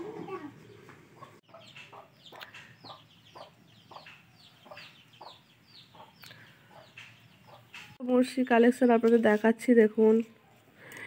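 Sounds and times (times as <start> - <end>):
chickens clucking: 0.0 - 8.0.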